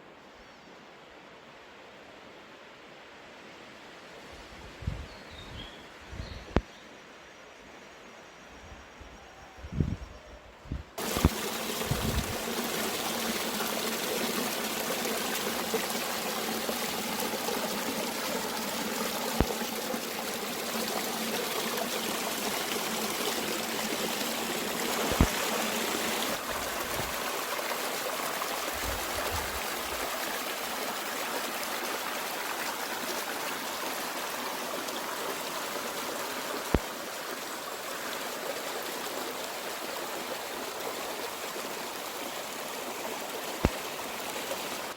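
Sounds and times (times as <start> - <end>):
stream flowing: 11.0 - 44.9.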